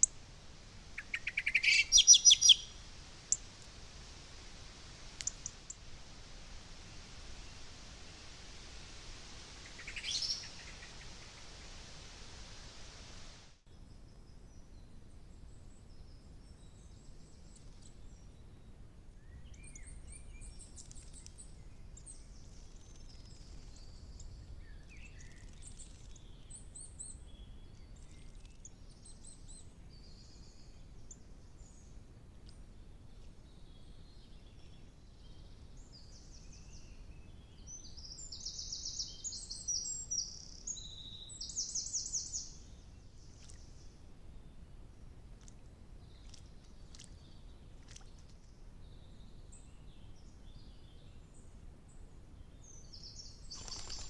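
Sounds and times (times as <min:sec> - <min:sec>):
low steady background noise: 0:00.0 - 0:54.0
birds singing and calling: 0:01.0 - 0:02.7, 0:09.6 - 0:11.2, 0:52.8 - 0:54.0.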